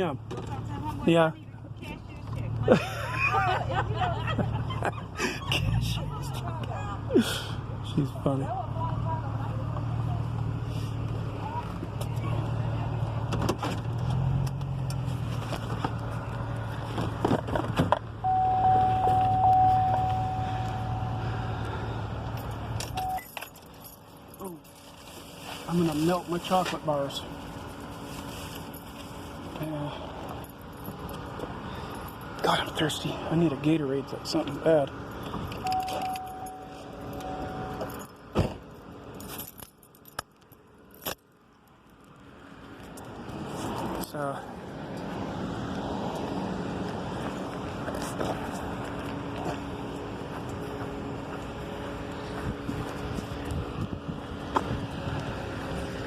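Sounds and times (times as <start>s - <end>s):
car engine idling: 0.0s - 41.0s
long electronic beep: 18.2s - 22.1s, 23.0s - 23.3s, 35.7s - 37.8s
keys jangling: 22.3s - 24.8s, 35.2s - 38.2s, 39.1s - 41.3s.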